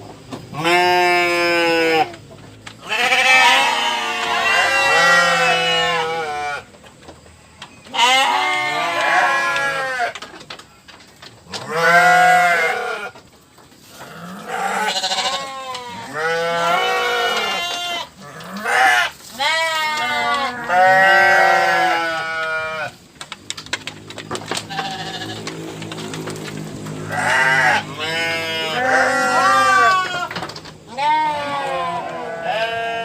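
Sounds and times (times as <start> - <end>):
goats or sheep bleating: 0.5 - 2.2, 2.8 - 6.7, 7.9 - 10.2, 11.6 - 13.2, 13.9 - 23.0, 24.5 - 25.6, 26.9 - 33.0.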